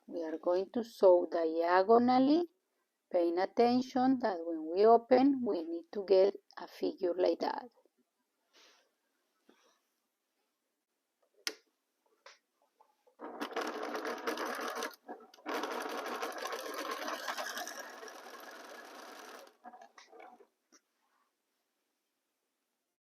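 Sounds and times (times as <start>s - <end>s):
sewing machine needle rattle: 13.2s - 20.4s.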